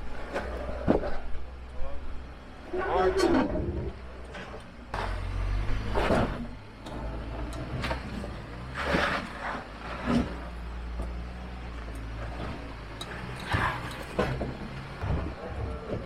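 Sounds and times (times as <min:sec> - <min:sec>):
car engine running low: 0:00.0 - 0:16.0.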